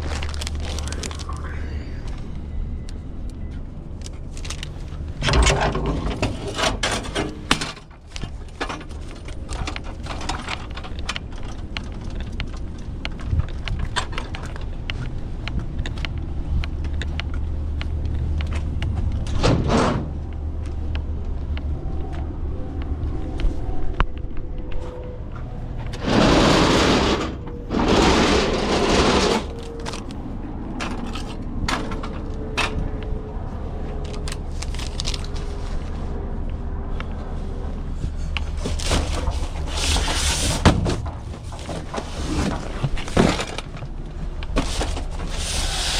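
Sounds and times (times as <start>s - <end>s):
truck engine rumbling: 0.0s - 45.9s
rustling and clattering: 4.0s - 20.7s, 23.1s - 33.0s, 37.7s - 45.9s
clicks and rattles: 4.0s - 21.0s.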